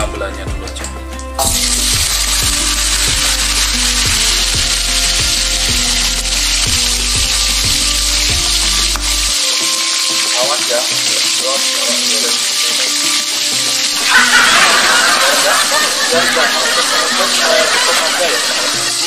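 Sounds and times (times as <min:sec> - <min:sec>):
chillies sizzling in hot oil: 0:00.7 - 0:19.0.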